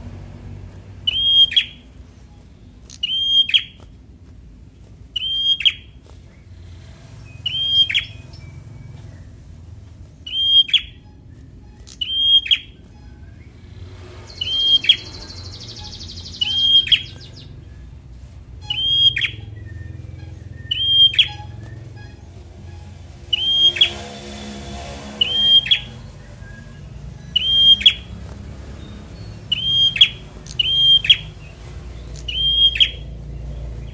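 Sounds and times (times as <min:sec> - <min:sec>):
songbird calling: 0:01.0 - 0:03.9, 0:05.1 - 0:33.9
high buzzy rasp: 0:06.0 - 0:32.3.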